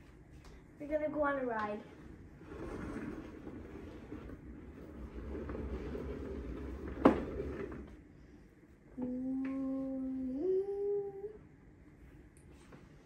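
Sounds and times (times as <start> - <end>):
low rumbling handling noise: 1.5 - 8.1
woman humming: 9.0 - 11.4.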